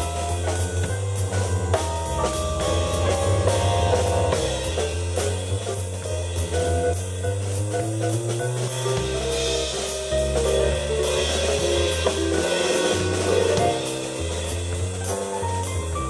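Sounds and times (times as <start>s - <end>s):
bass line: 0.0s - 16.0s
drum kit beat: 0.0s - 16.0s
keyboard chords: 1.0s - 4.8s.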